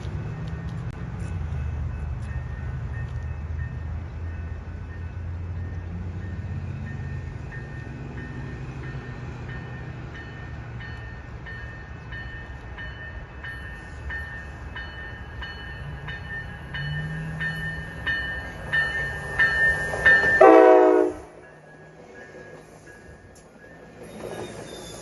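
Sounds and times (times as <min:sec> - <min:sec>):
train air horn blast: 0:20.4 - 0:21.4.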